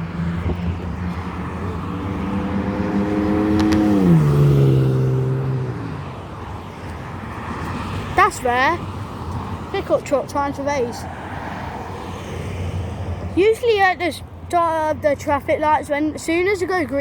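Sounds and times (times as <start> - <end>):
pickup truck accelerating past: 0.0 - 6.1
road traffic noise: 0.0 - 17.0.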